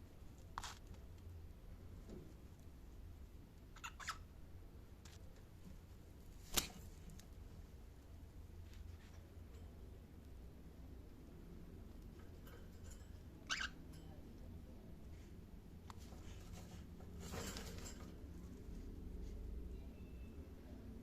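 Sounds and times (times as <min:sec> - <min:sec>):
low steady hum: 0:00.0 - 0:21.0
cockatiel chirp: 0:03.8 - 0:04.2.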